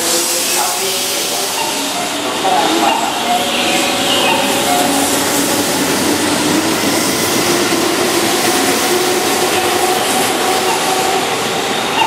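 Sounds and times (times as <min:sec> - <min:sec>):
train rushing past: 0:00.0 - 0:12.0.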